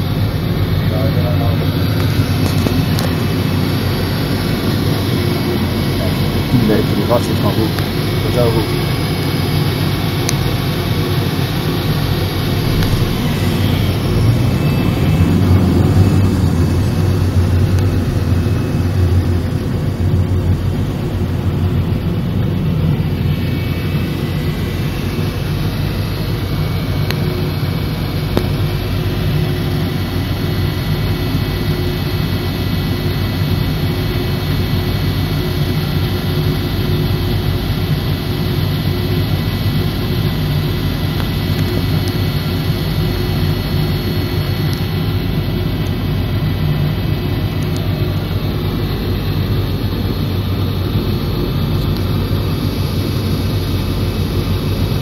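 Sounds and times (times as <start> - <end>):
car engine drone: 0.0 - 55.0
faint high tones: 11.8 - 16.6.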